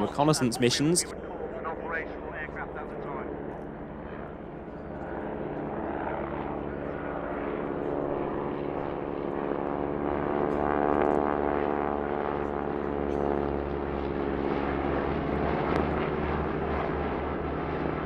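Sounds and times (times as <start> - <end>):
aircraft flying past droning: 0.0 - 18.0.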